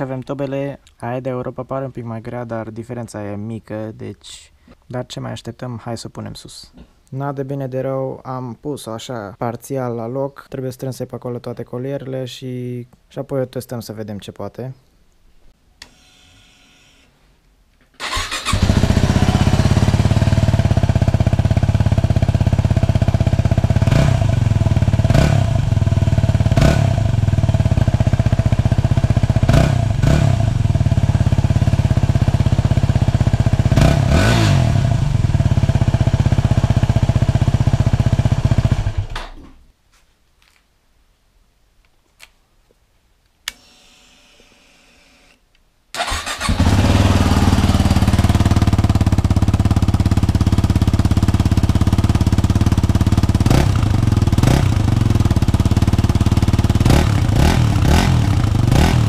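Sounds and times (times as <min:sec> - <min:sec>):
motorcycle engine idling and revving: 0:18.0 - 0:39.2, 0:46.0 - 0:59.0.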